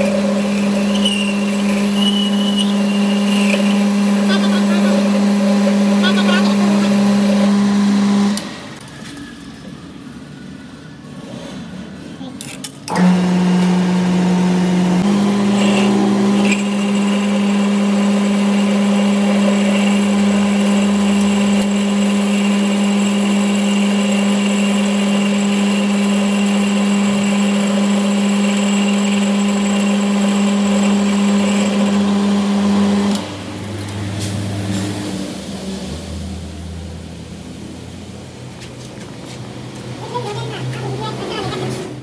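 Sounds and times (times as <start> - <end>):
power tool motor running: 0.0 - 8.8, 12.9 - 33.9.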